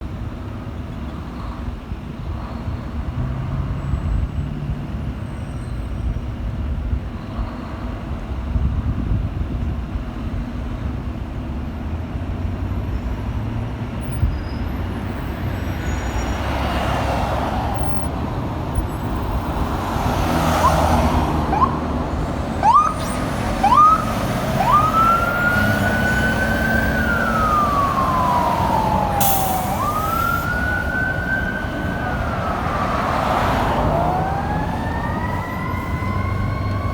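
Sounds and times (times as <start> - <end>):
fire truck engine rumbling: 0.0 - 36.9
electronic siren chirping and wailing: 21.5 - 21.9, 22.5 - 36.9.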